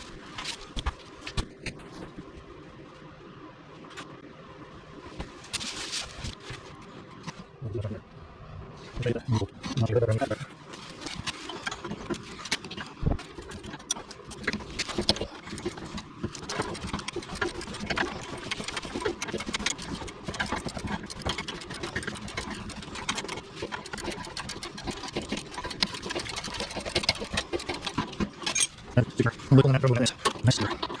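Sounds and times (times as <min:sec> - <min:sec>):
repair wrap crackling and clicking: 0:10.2 - 0:31.0.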